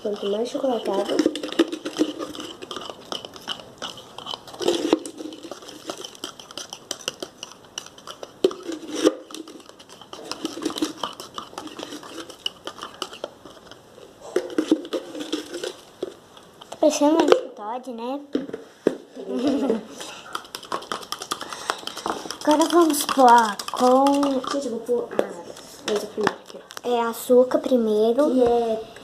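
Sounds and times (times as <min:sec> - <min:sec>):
metal spoon stirring batter in dish: 0:00.0 - 0:17.4, 0:20.0 - 0:25.0.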